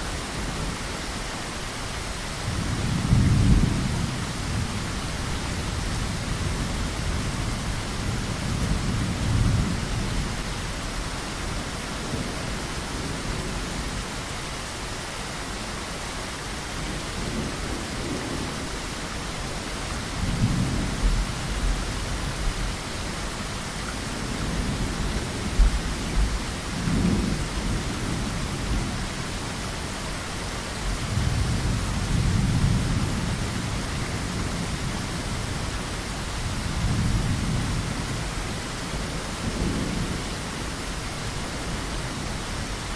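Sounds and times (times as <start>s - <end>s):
heavy rain: 0.0s - 42.9s
rolling thunder: 31.0s - 35.0s.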